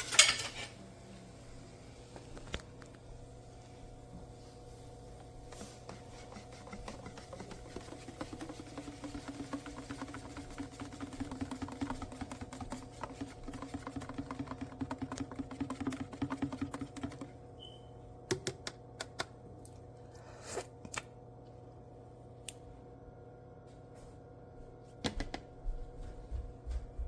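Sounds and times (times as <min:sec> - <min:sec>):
coffee maker brewing: 0:05.0 - 0:17.4.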